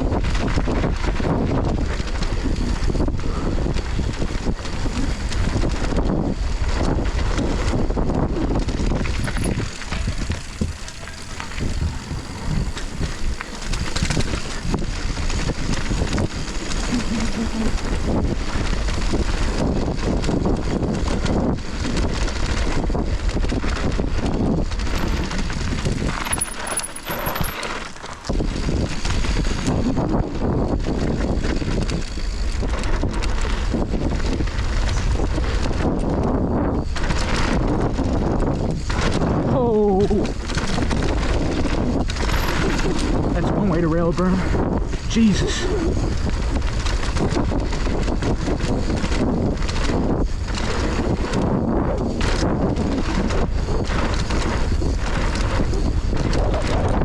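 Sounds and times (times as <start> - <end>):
bike tyres on dirt: 0.0 - 57.0
wind rushing over microphone: 0.0 - 57.0
bike rattling and clinking: 8.7 - 29.7, 36.8 - 44.7, 45.5 - 57.0.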